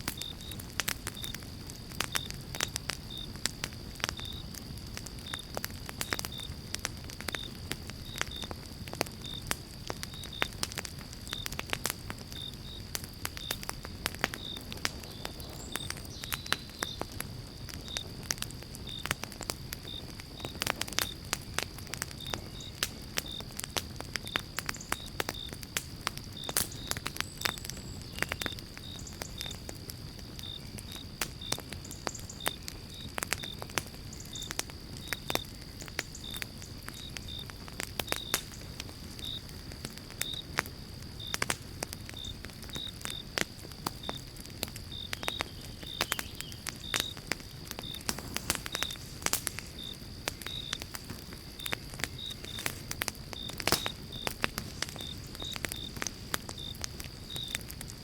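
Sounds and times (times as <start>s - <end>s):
campfire crackling and popping: 0.0s - 58.0s
cricket chirping: 0.0s - 58.0s.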